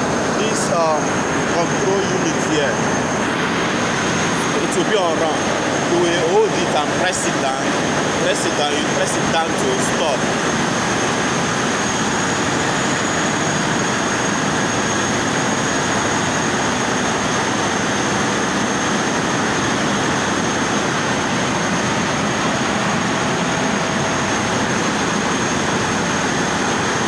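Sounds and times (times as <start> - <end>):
thin high whine: 0.0 - 11.8
marine diesel engine drone: 0.0 - 27.0.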